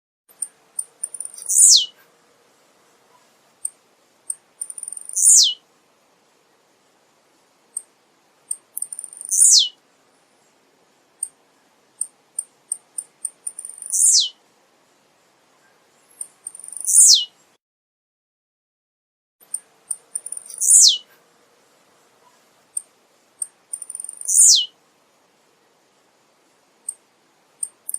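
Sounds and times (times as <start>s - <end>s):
short high bird ticks: 0.3s - 1.9s, 3.6s - 5.5s, 8.5s - 9.7s, 12.0s - 14.3s, 16.2s - 17.2s, 19.4s - 21.0s, 22.8s - 24.7s, 27.6s - 27.9s
bird buzzy falling song: 0.4s - 2.1s, 4.3s - 5.6s, 8.5s - 9.8s, 12.0s - 14.4s, 15.6s - 17.6s, 19.4s - 21.2s, 23.4s - 24.8s.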